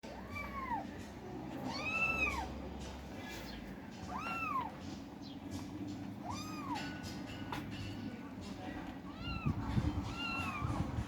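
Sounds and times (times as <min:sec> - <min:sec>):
kittens meowing: 0:00.1 - 0:02.6, 0:04.0 - 0:05.0, 0:06.1 - 0:07.0, 0:09.1 - 0:11.0.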